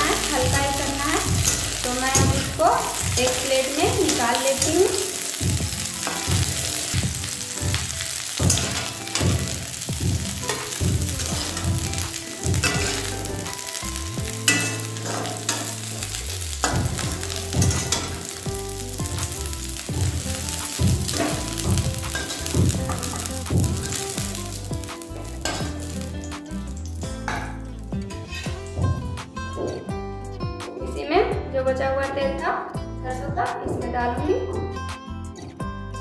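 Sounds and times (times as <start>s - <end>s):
food sizzling in hot oil: 0.0s - 28.4s
metal spatula scraping a pan: 28.2s - 28.7s.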